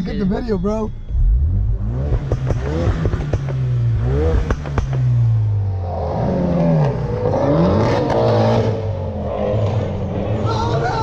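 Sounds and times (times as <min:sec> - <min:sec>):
wavering higher tones: 0:00.0 - 0:02.0
car engine droning: 0:00.0 - 0:11.0.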